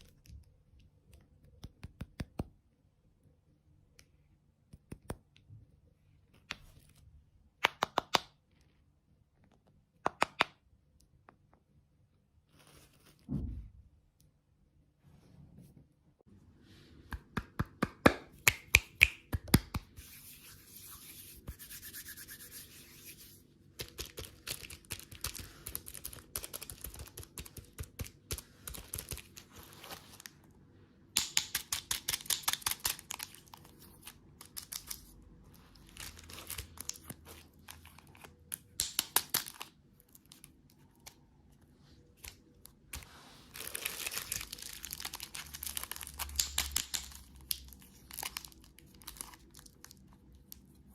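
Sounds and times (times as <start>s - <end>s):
plastic packaging crinkling: 43.5s - 50.6s.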